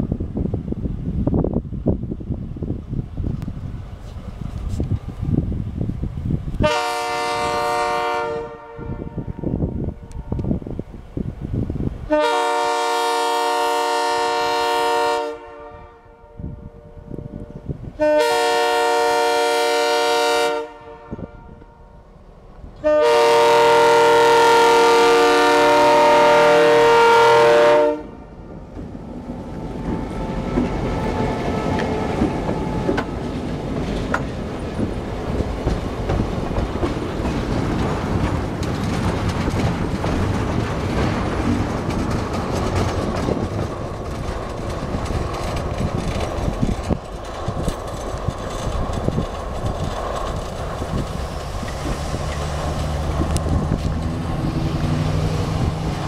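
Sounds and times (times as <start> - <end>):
train wheels knocking on rails: 29.6 - 56.0.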